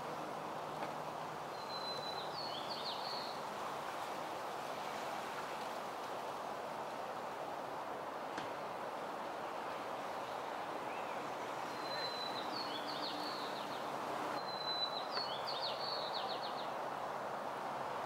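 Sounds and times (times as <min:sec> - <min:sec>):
outdoor background hiss: 0:00.0 - 0:18.0
songbird singing: 0:01.5 - 0:03.5, 0:08.5 - 0:16.9.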